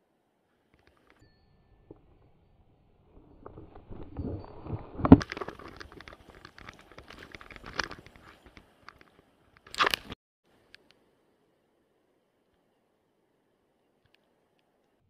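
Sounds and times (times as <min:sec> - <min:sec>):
footsteps on stones and gravel: 0:03.2 - 0:10.2.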